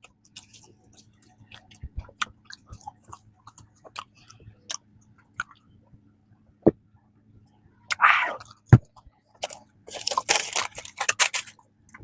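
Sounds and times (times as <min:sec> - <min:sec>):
chewing mouth clicks and smacks: 0:00.0 - 0:05.7.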